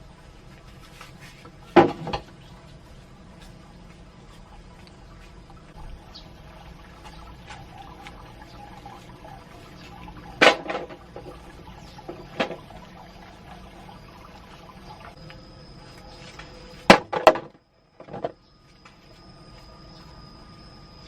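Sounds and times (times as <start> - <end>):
sharp knocks and clatters: 1.4 - 2.4
water splashing and pouring: 4.3 - 15.2.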